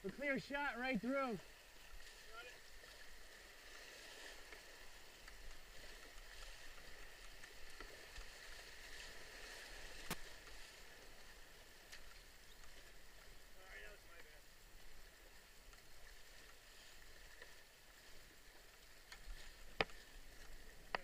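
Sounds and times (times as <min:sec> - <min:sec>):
paddle strokes: 0:00.0 - 0:21.0
river water rushing: 0:00.0 - 0:21.0.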